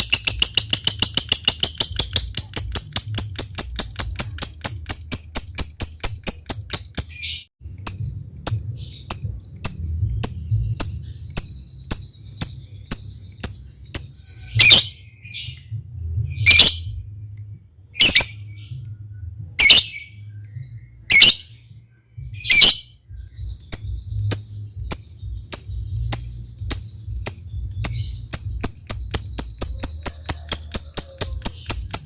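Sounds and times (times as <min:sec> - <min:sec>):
bird ticking chips: 0:00.0 - 0:08.5, 0:24.9 - 0:32.0
harsh bird chirps: 0:00.0 - 0:17.4, 0:18.0 - 0:32.0.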